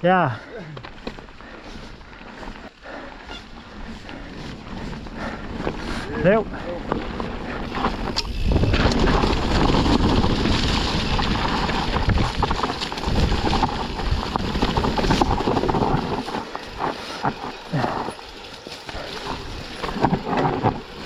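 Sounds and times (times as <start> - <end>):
tyre noise on dirt: 0.0 - 21.0
bike knocks and rattles: 0.8 - 1.5, 6.8 - 21.0
wind buffeting microphone: 3.4 - 18.2.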